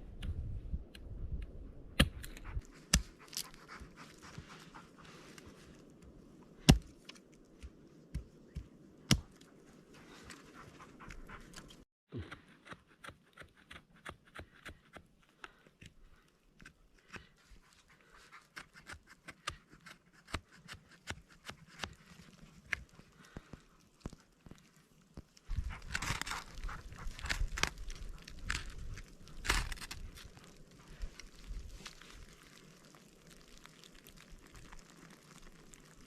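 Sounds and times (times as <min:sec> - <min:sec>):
dog panting: 0:10.0 - 0:11.8.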